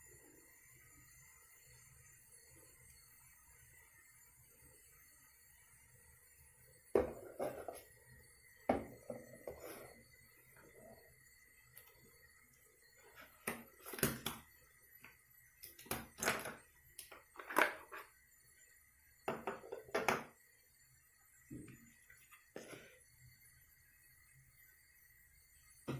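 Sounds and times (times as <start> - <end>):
faint high whine: 0.0 - 25.9.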